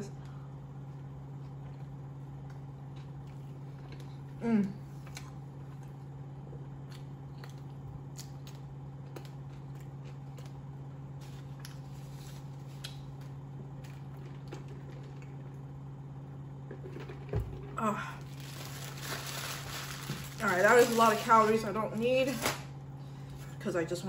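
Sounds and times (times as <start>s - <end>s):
steady low hum: 0.0s - 24.0s
chewing and mouth noises: 1.4s - 10.8s
paper wrapper rustling: 18.3s - 22.6s.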